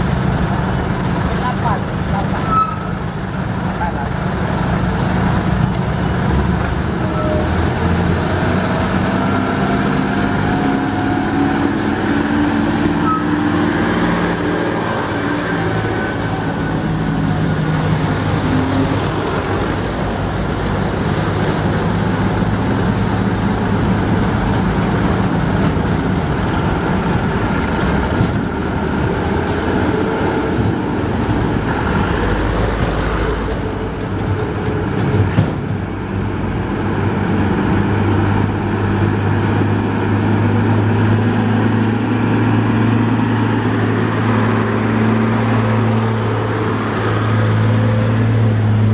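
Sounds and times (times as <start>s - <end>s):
diesel truck engine under load: 0.0s - 48.9s
brief high squeaks: 13.0s - 13.3s.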